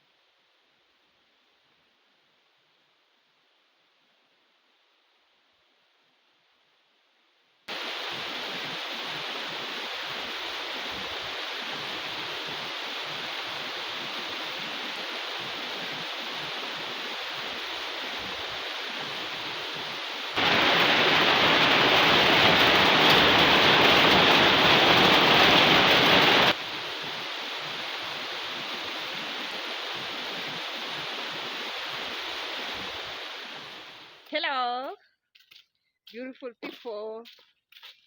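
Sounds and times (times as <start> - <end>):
heavy rain falling: 7.7 - 34.3.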